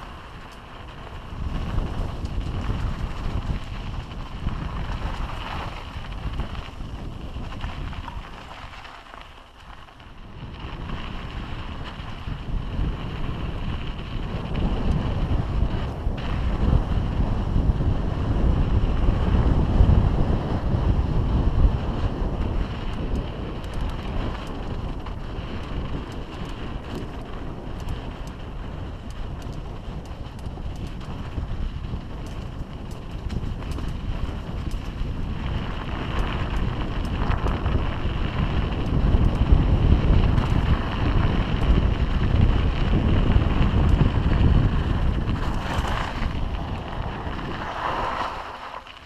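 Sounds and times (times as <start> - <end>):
bike rattling over rough trail: 0.0 - 49.0
wind buffeting microphone: 0.0 - 49.0
small clicks: 22.8 - 24.7, 25.5 - 28.4, 29.0 - 31.4, 32.0 - 35.0.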